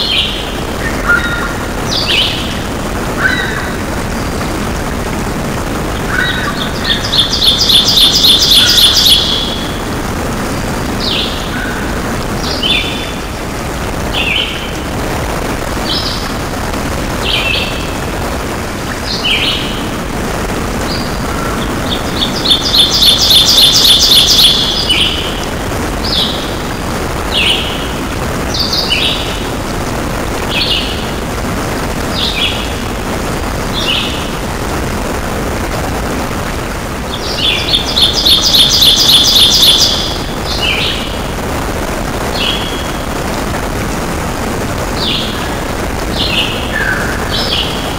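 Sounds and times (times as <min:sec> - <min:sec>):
bird trill: 0:00.0 - 0:03.8, 0:06.1 - 0:09.8, 0:11.0 - 0:13.3, 0:19.0 - 0:19.8, 0:20.9 - 0:29.4, 0:30.5 - 0:31.1, 0:37.1 - 0:41.2, 0:42.3 - 0:43.0, 0:45.0 - 0:47.9
downward-slurred bird calls: 0:00.0 - 0:04.4, 0:05.9 - 0:09.9, 0:11.0 - 0:14.9, 0:18.8 - 0:20.0, 0:20.8 - 0:29.6, 0:30.4 - 0:31.2, 0:37.1 - 0:41.3, 0:44.9 - 0:47.9
steady rushing noise: 0:00.0 - 0:47.9.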